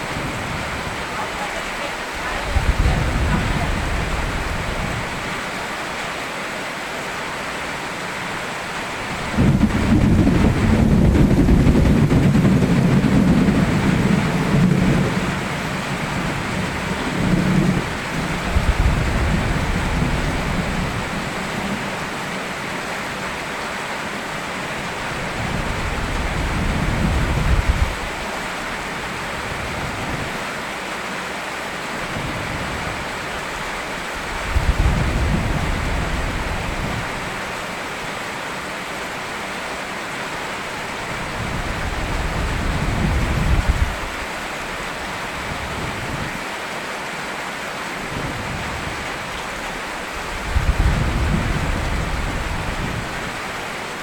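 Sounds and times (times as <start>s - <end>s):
low thunder rumbling: 0.0s - 5.4s, 8.9s - 22.2s, 24.8s - 30.4s, 32.1s - 37.6s, 41.0s - 46.3s, 48.1s - 53.6s
steady rain: 0.0s - 54.0s.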